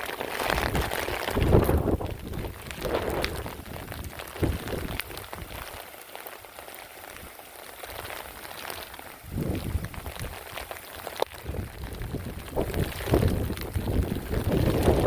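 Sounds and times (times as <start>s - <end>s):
rain: 0.0s - 15.0s
wind buffeting microphone: 0.5s - 5.8s, 9.2s - 10.6s, 11.3s - 15.0s.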